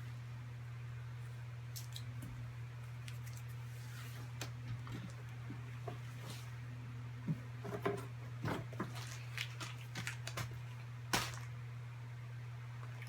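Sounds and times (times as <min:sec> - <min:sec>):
low electrical hum: 0:00.0 - 0:13.0
cereal crunching: 0:08.9 - 0:11.5.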